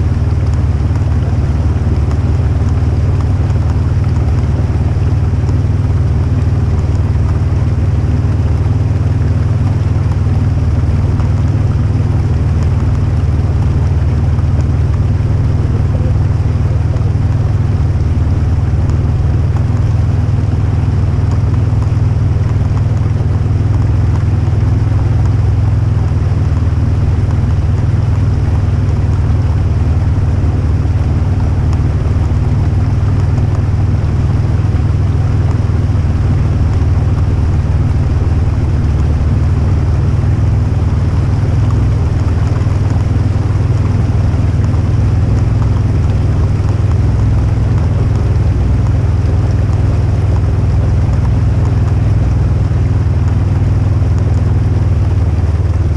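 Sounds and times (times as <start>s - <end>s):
loud engine running while driving: 0.0s - 55.9s.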